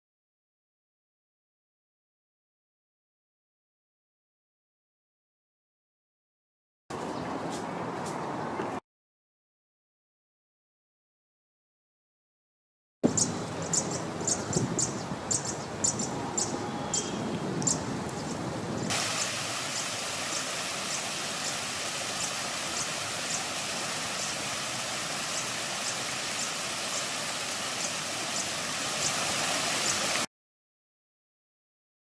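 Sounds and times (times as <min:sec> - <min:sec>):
city background hiss: 0:13.0 - 0:30.3
small bird calling: 0:13.1 - 0:18.4.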